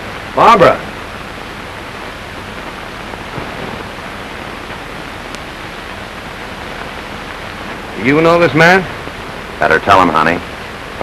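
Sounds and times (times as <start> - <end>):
film soundtrack hiss: 0.0 - 11.0.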